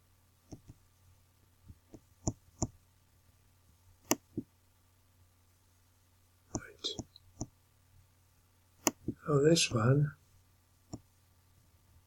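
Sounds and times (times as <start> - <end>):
computer mouse clicking: 0.5 - 0.8, 1.9 - 2.8, 4.0 - 4.4, 8.8 - 9.2, 10.9 - 11.1.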